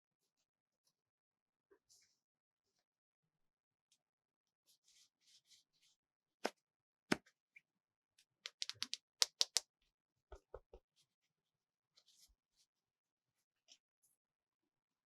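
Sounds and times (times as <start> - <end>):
plastic toy car taps and clicks: 8.5 - 9.6.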